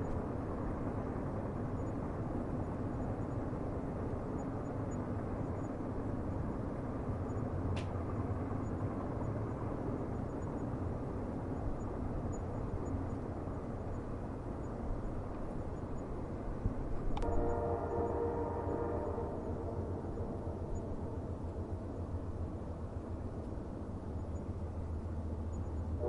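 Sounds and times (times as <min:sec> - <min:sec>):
distant train rumbling: 0:00.0 - 0:26.0
train horn: 0:17.2 - 0:21.8.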